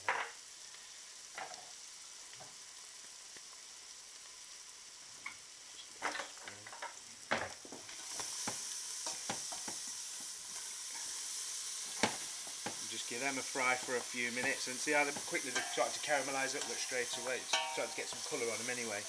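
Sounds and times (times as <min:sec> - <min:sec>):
shallots sizzling in a pan: 0:00.0 - 0:19.0
utensil knocking and scraping pan: 0:13.8 - 0:18.6.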